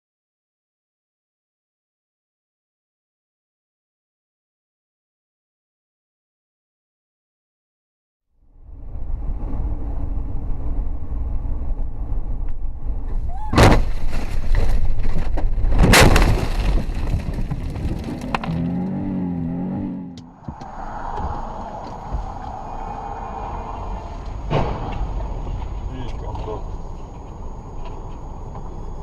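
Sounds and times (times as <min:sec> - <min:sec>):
road and engine noise in car: 0:08.5 - 0:15.6, 0:18.3 - 0:29.0
car collision crashes: 0:13.2 - 0:18.9, 0:23.8 - 0:25.9.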